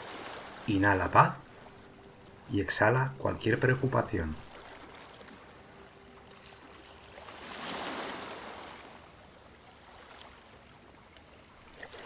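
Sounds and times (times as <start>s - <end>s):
sea waves washing onto beach: 0.0s - 1.8s.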